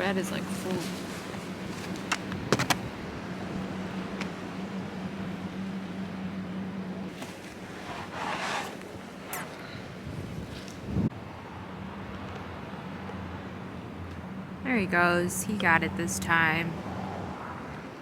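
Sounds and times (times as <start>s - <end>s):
sharp knocks: 2.1s - 2.9s.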